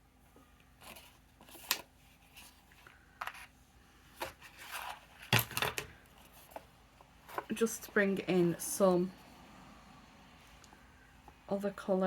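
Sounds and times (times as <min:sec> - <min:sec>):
paper rustling and scraping: 0:04.2 - 0:05.3.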